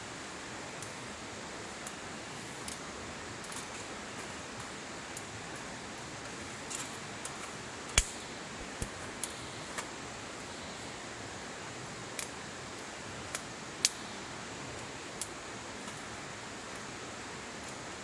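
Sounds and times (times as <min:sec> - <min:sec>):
campfire crackling and popping: 0:06.6 - 0:10.6.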